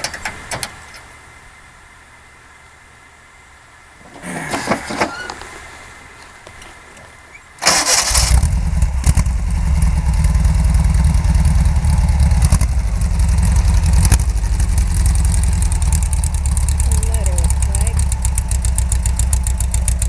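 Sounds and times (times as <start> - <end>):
car engine starting and running: 7.6 - 20.0.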